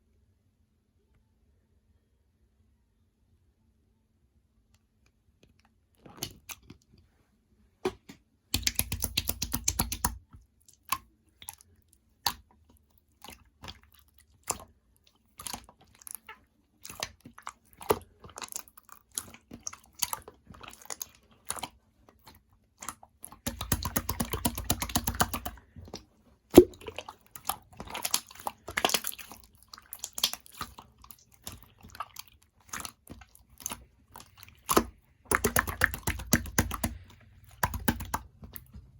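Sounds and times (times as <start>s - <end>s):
slime squished by hand: 7.9s - 38.9s
rapid crackling of slime: 8.5s - 38.9s.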